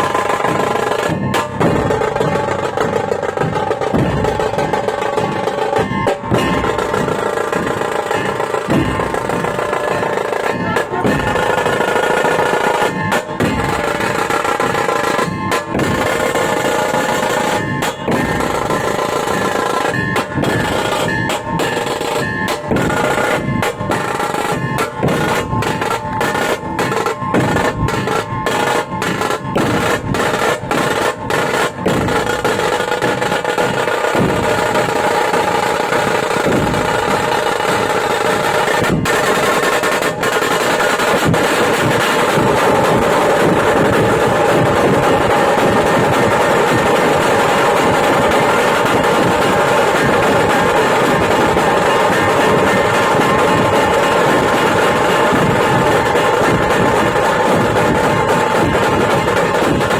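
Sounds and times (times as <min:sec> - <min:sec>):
held melody: 0:00.0 - 0:33.2
fast drumming: 0:00.0 - 0:59.9.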